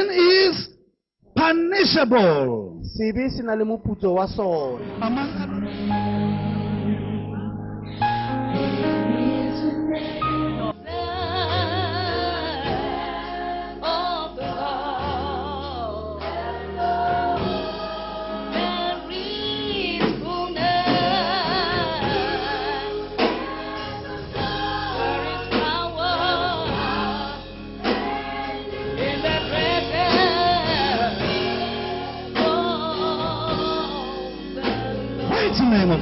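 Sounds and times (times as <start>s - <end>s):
instrumental chords: 4.8s - 36.0s
voices singing with vibrato: 8.5s - 36.0s.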